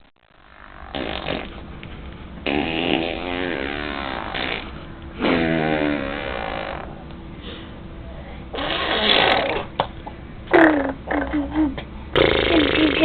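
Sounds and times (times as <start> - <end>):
baby blowing raspberries: 0.9 - 1.7, 2.4 - 6.9, 8.6 - 9.7.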